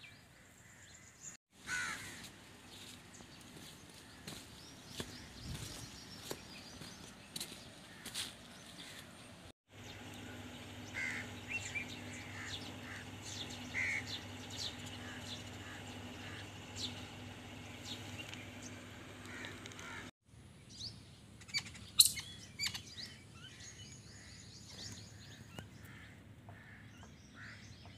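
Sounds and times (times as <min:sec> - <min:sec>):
small birds chirping: 0:00.0 - 0:27.9
low hum: 0:09.3 - 0:20.1.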